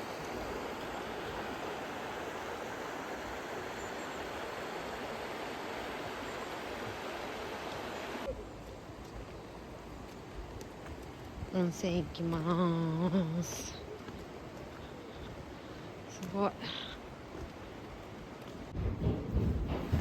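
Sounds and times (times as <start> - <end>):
river water rushing: 0.0 - 8.3.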